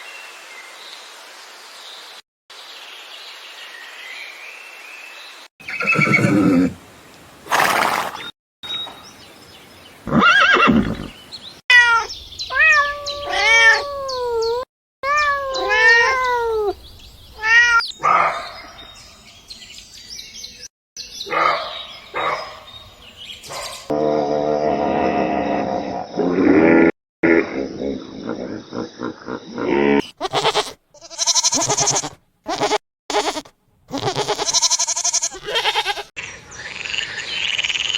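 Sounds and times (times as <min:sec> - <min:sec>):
farm animal calls: 0:05.6 - 0:06.8, 0:10.0 - 0:11.2, 0:27.7 - 0:36.1.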